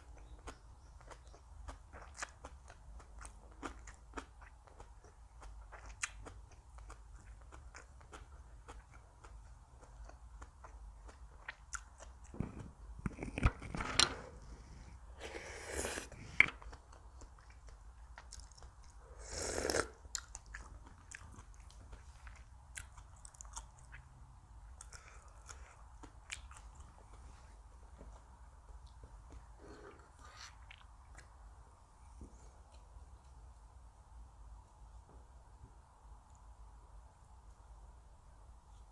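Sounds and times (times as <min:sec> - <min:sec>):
chewing and biting food: 0:00.0 - 0:13.8, 0:16.4 - 0:19.0, 0:19.7 - 0:27.4.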